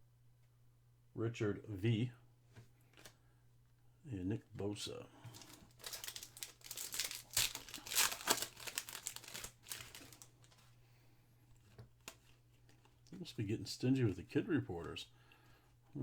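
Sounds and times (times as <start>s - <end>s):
foil wrapper crinkling: 5.2s - 10.8s.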